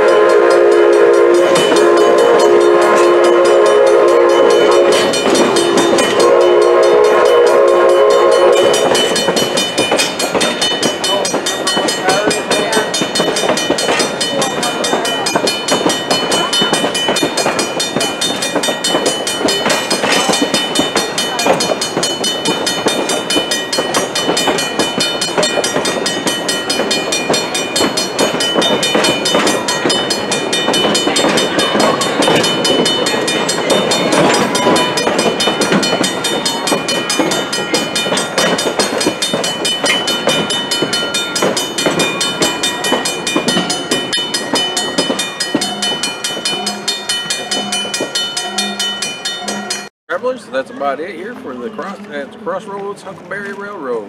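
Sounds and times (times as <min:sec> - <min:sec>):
train rolling along track: 0:00.0 - 0:54.0
wheels knocking and rattling: 0:08.6 - 0:49.9.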